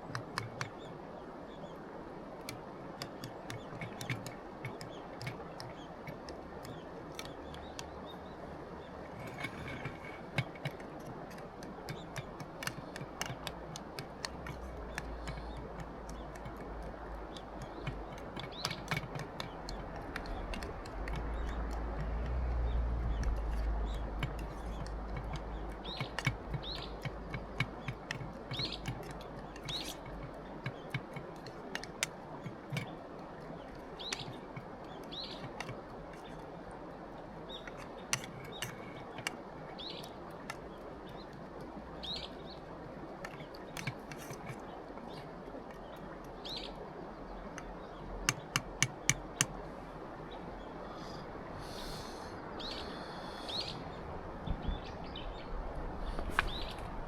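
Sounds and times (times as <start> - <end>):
light clicks: 2.4 - 8.2, 8.8 - 49.6
small bird chirping: 3.3 - 10.6, 14.4 - 36.5, 37.4 - 57.0
steady hiss: 50.8 - 53.9.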